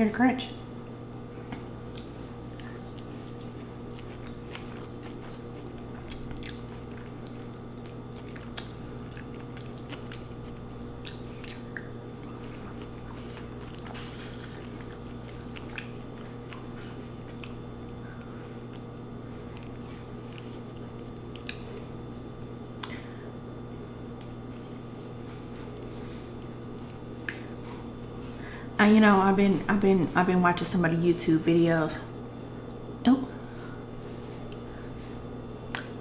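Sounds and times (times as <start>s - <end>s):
steady low hum: 0.0s - 36.0s
chewing crunchy chicken: 1.4s - 28.5s.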